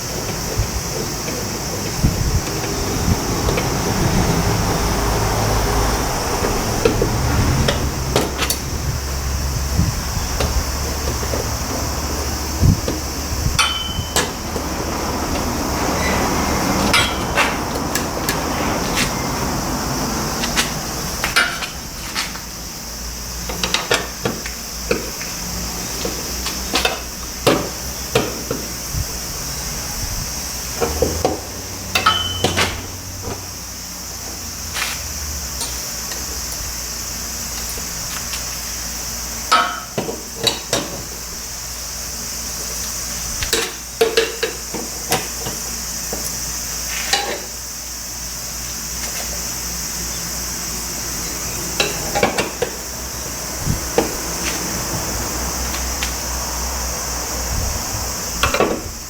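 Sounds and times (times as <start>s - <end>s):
steady background hiss: 0.0s - 59.0s
hand tools clinking on metal: 13.6s - 14.6s, 16.8s - 19.2s, 31.9s - 32.8s.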